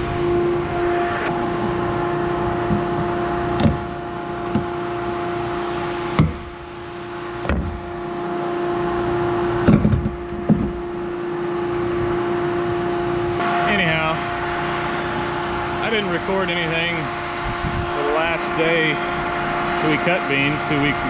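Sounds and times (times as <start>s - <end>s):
combine harvester humming: 0.0s - 21.0s
sharp knocks and clicks: 7.4s - 7.8s, 9.7s - 10.8s.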